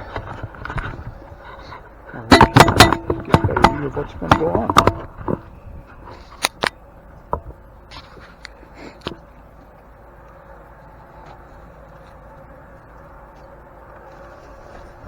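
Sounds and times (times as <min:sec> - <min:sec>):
low background hum: 0:00.0 - 0:15.0
camera handling clicks and knocks: 0:06.4 - 0:06.8.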